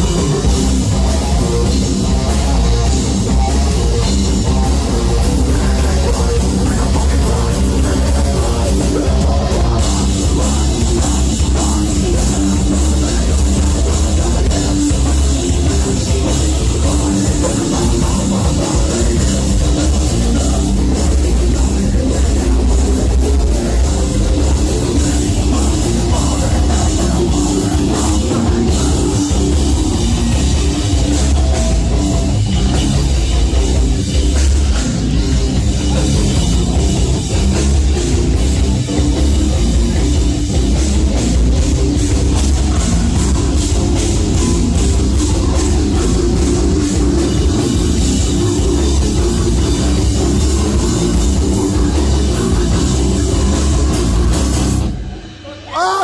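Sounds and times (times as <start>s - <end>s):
heavy metal band playing live: 0.0s - 56.0s
pounding drum kit: 0.0s - 56.0s.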